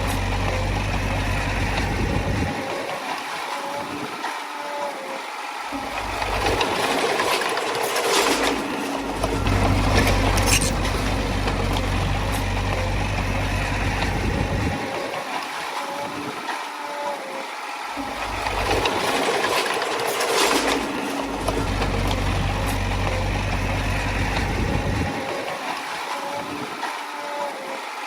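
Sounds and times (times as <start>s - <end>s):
bulldozer diesel engine: 0.0s - 3.2s, 5.7s - 15.4s, 18.0s - 26.5s.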